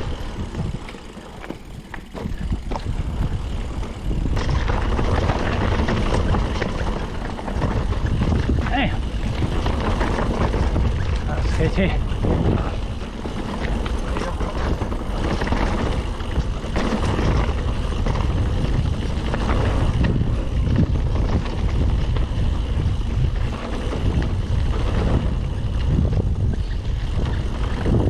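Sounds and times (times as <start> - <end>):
bike rattle and tyre noise: 0.0 - 28.0
wind on microphone: 0.0 - 28.0.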